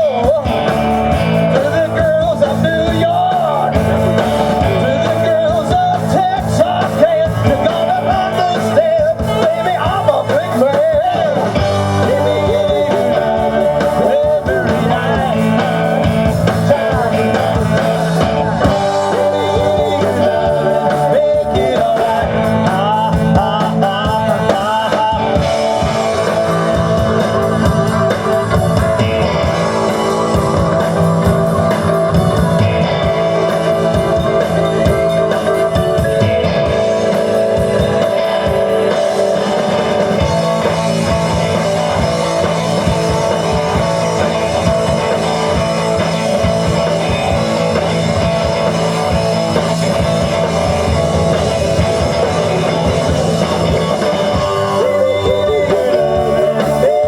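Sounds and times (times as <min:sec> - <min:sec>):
bass guitar: 0:00.0 - 0:57.0
drum kit: 0:00.0 - 0:57.0
electric guitar: 0:00.0 - 0:57.0.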